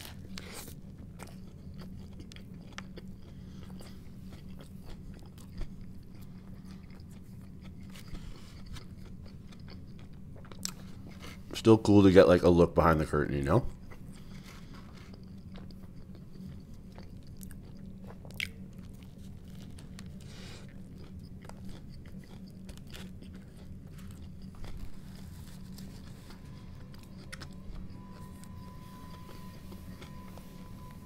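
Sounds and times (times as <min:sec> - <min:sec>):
person chewing toasted sandwich: 0:00.0 - 0:12.2, 0:12.9 - 0:31.0
steady low hum: 0:00.0 - 0:31.0.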